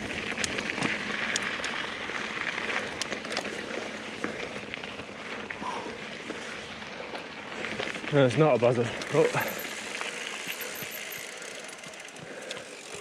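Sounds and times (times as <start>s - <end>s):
bike tyres crunching on dirt: 0.0s - 13.0s
sharp clicks and ticks: 8.9s - 13.0s.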